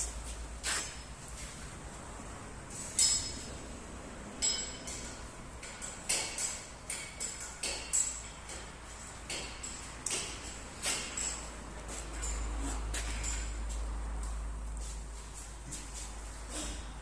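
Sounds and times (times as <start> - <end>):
metallic clinks and knocks: 2.9 - 3.7, 4.4 - 14.4.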